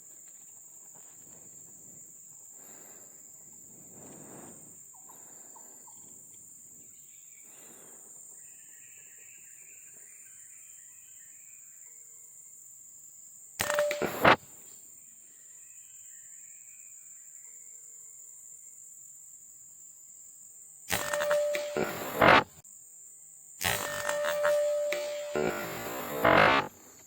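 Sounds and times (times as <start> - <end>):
high-pitched insect drone: 13.6 - 14.4, 20.9 - 22.6, 23.6 - 26.8
loud sharp noise: 13.6 - 14.4, 20.9 - 22.6, 23.6 - 27.0.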